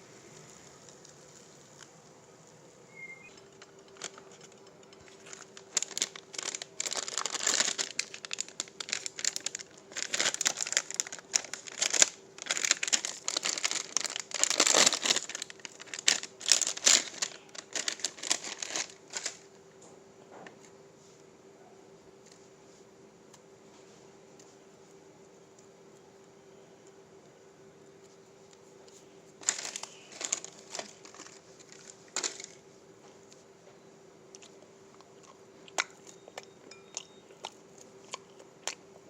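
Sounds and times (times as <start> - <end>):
faint steady hum: 0.0 - 39.0
packaging crinkling: 2.9 - 19.5, 29.4 - 32.6.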